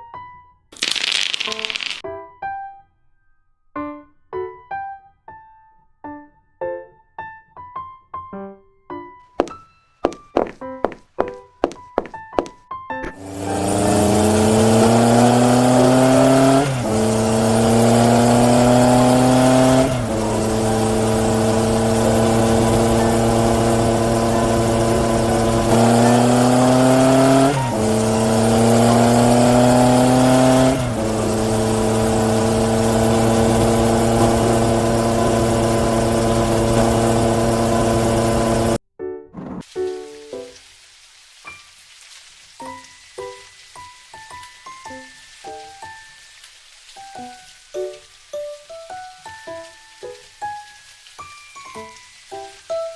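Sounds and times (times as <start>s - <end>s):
engine speeding up: 13.2s - 38.8s.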